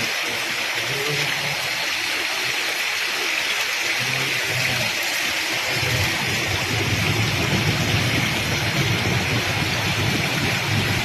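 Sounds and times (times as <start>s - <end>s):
heavy rain pouring: 0.0s - 11.0s
low engine rumble: 4.0s - 11.0s.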